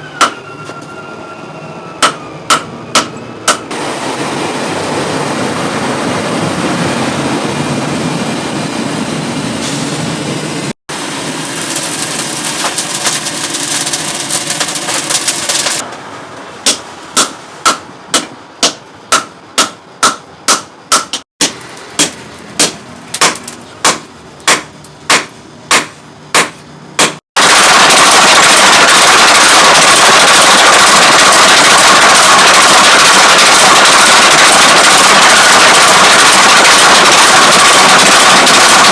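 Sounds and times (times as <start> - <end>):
workshop noise: 0.0 - 38.9
hammer blows on steel: 2.0 - 3.7
loud rushing noise: 3.5 - 17.6.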